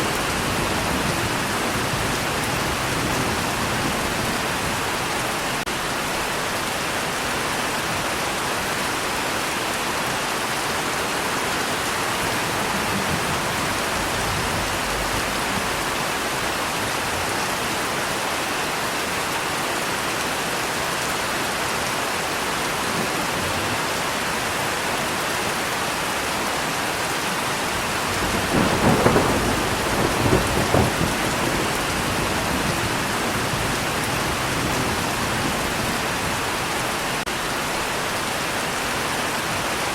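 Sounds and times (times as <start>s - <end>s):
rolling thunderclap: 0.0s - 5.0s, 12.0s - 16.5s, 28.0s - 36.6s
heavy rain falling: 0.0s - 39.9s.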